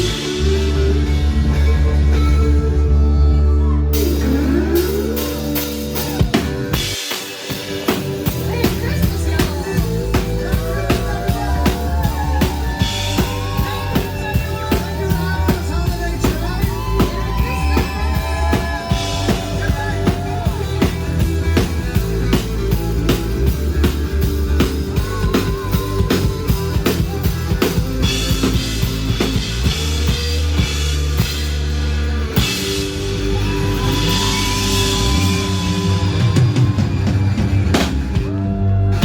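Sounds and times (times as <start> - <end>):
rock band music: 0.0 - 39.0.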